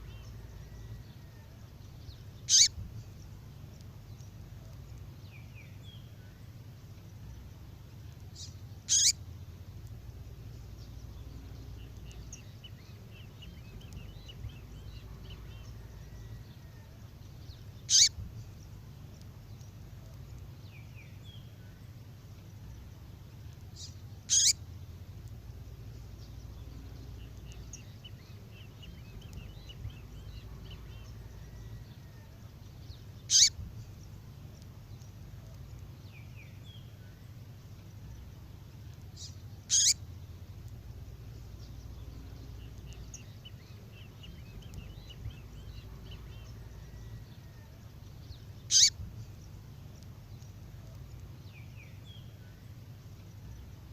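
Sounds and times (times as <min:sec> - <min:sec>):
high downward-sweeping bird calls: 0:00.0 - 0:03.1, 0:08.4 - 0:09.4, 0:10.5 - 0:18.8, 0:23.8 - 0:24.7, 0:26.2 - 0:34.2, 0:39.1 - 0:49.7
soft bird twittering: 0:00.0 - 0:37.2, 0:37.8 - 0:53.9
low steady hum: 0:00.0 - 0:53.9.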